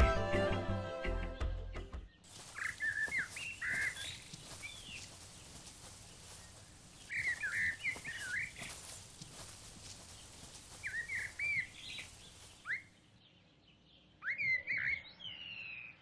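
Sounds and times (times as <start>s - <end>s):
faint outdoor ambience: 2.0s - 16.0s
songbird whistling phrases: 2.6s - 5.0s, 10.8s - 13.0s, 14.2s - 15.9s.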